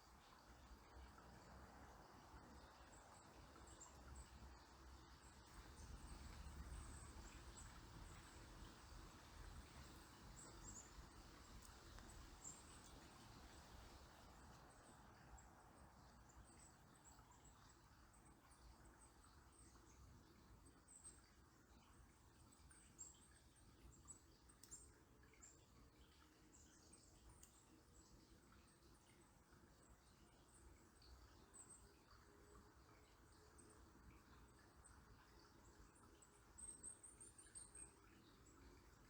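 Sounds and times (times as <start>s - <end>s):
calm river flowing: 0.0s - 39.0s
small birds chirping: 2.5s - 20.1s.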